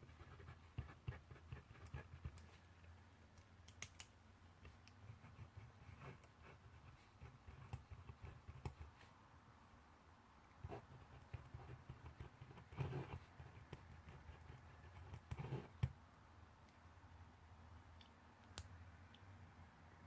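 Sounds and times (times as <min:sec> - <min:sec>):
pen scratching on paper: 0:00.0 - 0:02.6, 0:04.6 - 0:09.1, 0:10.6 - 0:15.9
pen tapping and clicking: 0:07.2 - 0:08.9, 0:10.6 - 0:16.0.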